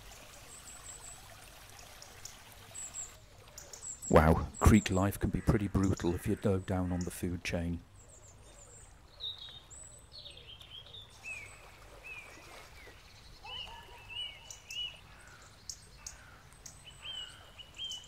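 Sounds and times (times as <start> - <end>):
faint birdsong chirps: 0.0 - 18.0.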